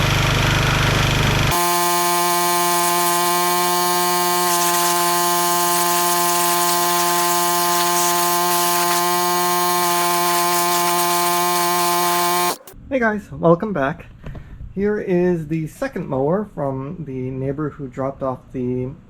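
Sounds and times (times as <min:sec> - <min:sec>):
motor buzzing drone: 0:00.0 - 0:12.8
hiss: 0:01.5 - 0:12.8.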